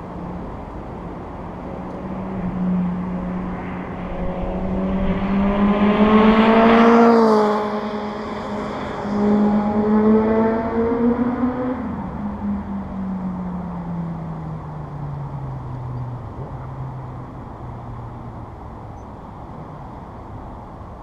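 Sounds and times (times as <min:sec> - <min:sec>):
motorcycle passing by: 0:02.0 - 0:12.1.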